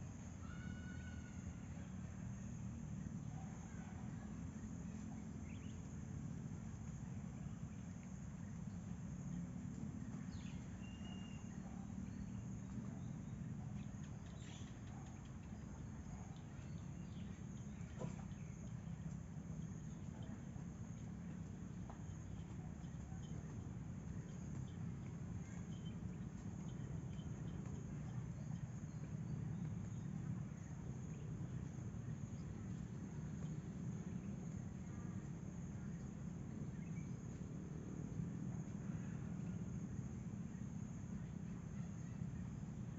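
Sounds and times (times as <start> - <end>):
low steady rumble: 0.0 - 42.9
high-pitched insect drone: 0.4 - 1.9.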